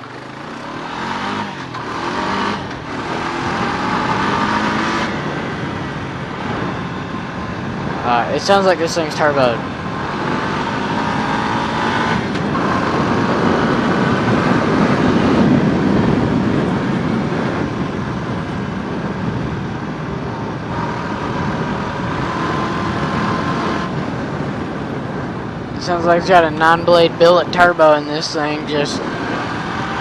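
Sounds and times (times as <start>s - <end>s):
person speaking: 8.0s - 9.6s, 25.8s - 29.0s.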